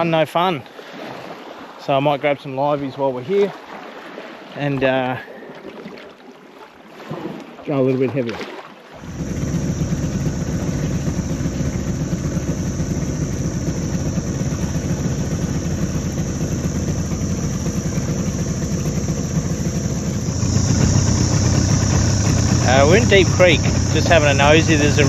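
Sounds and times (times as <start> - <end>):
outboard motor running: 8.9 - 25.0.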